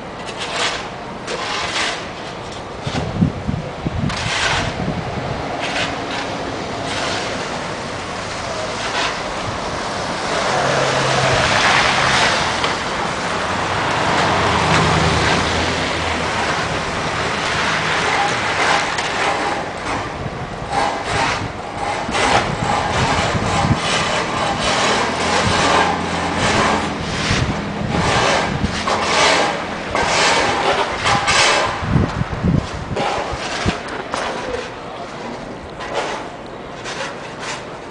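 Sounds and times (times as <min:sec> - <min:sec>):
tyre hiss of passing vehicles: 0:05.3 - 0:20.0, 0:20.8 - 0:32.0.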